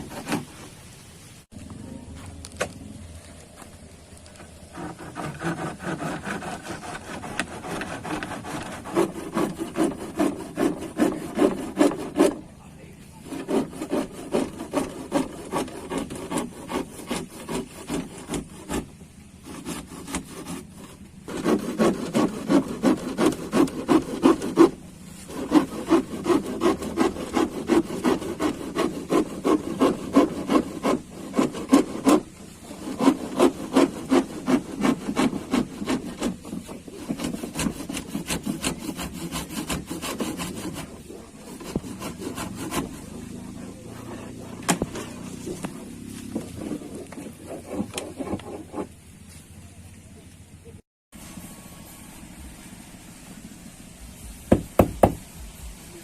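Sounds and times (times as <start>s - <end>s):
hand saw cutting: 0.0s - 0.6s, 4.6s - 12.5s, 13.1s - 49.0s.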